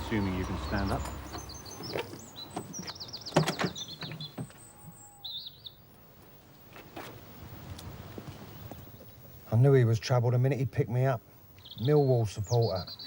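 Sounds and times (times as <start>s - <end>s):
small birds chirping and trilling: 0.0s - 5.8s, 11.6s - 13.0s.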